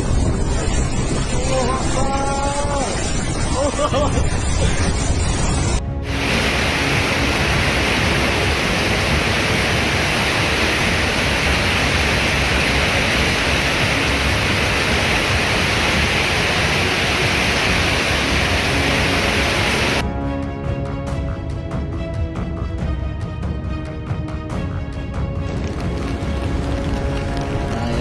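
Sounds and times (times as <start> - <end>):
heavy rain in windstorm: 0.0 - 20.0, 25.5 - 28.0.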